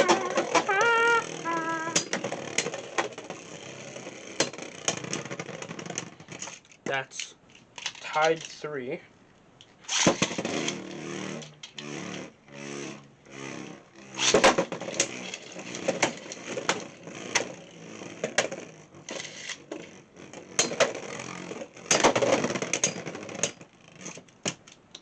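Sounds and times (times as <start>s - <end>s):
spinning tops clashing: 0.0s - 2.2s
spinning tops whirring: 0.0s - 5.4s.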